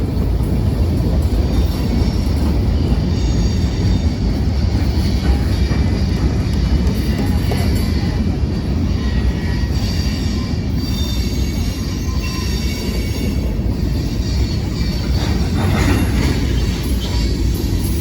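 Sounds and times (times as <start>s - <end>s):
railcars rumbling on track: 0.0s - 18.0s
high wheel squeal: 8.8s - 18.0s.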